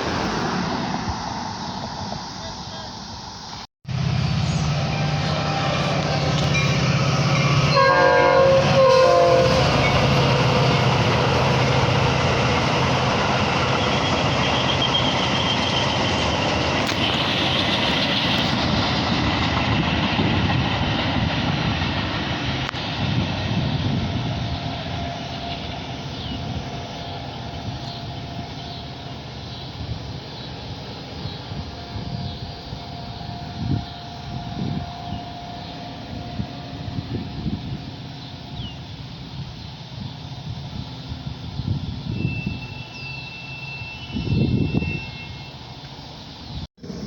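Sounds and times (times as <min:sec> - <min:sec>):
train cars rumbling past: 0:00.0 - 0:47.0
train horn blasts: 0:03.9 - 0:11.1, 0:31.6 - 0:38.5, 0:42.1 - 0:45.7.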